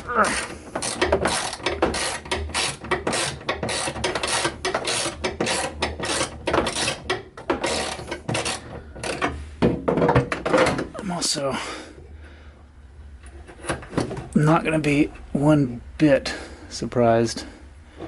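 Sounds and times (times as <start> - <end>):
ratchet tool strokes: 0.4 - 9.3.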